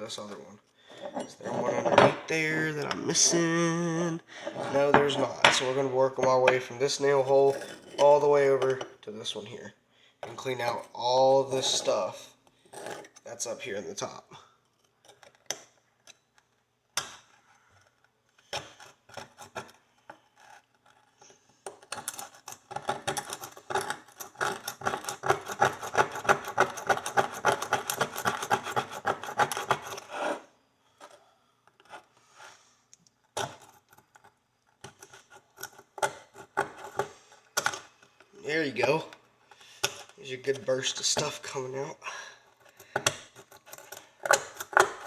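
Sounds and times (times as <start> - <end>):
hand pick scraping steel horseshoe: 0.9 - 3.8, 4.4 - 8.9, 10.3 - 13.3, 18.6 - 31.2, 33.4 - 45.0.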